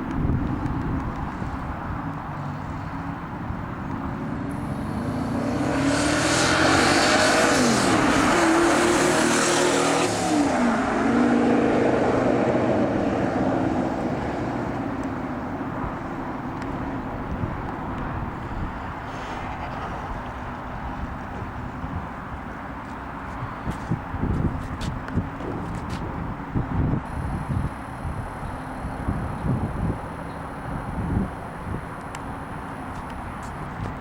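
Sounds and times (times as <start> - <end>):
car engine pulling hard: 4.1 - 17.2.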